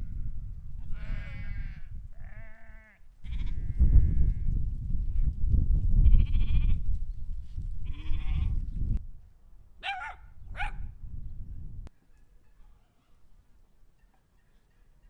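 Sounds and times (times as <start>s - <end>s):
sheep or goats bleating: 0.8s - 4.5s, 6.0s - 6.8s, 7.8s - 8.6s.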